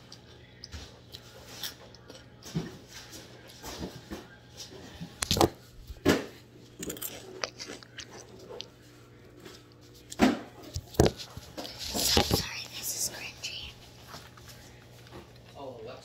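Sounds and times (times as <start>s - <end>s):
chewing snack food: 0.0s - 3.6s, 6.6s - 12.4s.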